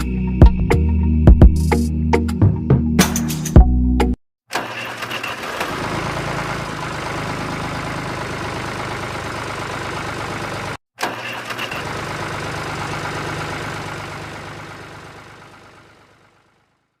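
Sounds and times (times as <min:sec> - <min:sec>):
small engine starting and running: 0:04.5 - 0:17.0.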